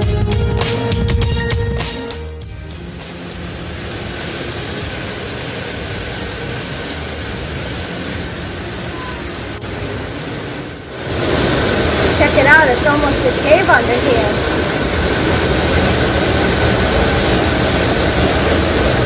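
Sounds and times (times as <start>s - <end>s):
waterfall rushing: 2.7s - 19.0s.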